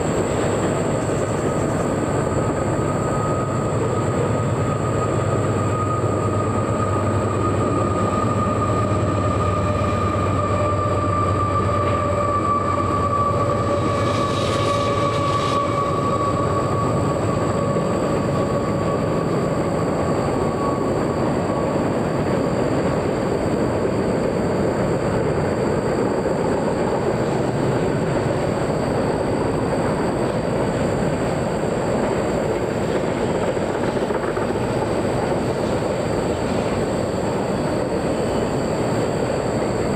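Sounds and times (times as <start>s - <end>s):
train wheels clattering on rail: 0.0s - 39.9s
high squealing tone: 2.2s - 21.7s.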